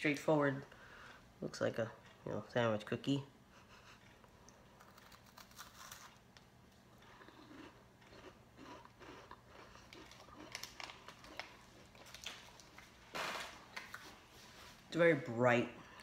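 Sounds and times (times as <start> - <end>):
person chewing a crisp biscuit: 3.6 - 13.0.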